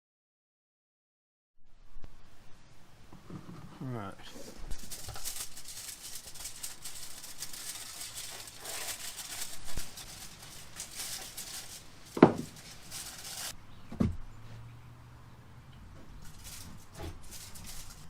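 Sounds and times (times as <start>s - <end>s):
rustling and handling noises: 3.1s - 13.6s, 15.9s - 18.0s.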